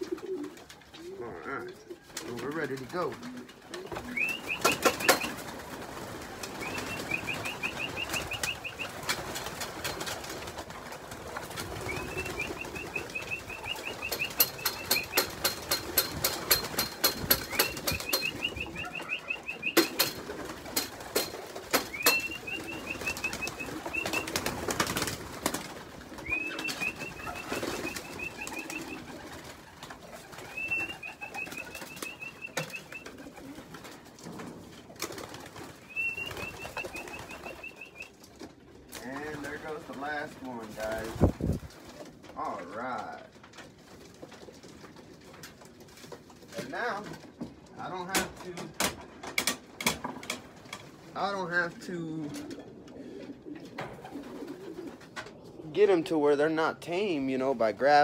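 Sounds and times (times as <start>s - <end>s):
pigeons cooing: 0.0s - 42.7s, 48.6s - 57.3s
pigeon wing flaps: 2.0s - 42.3s, 53.2s - 55.4s.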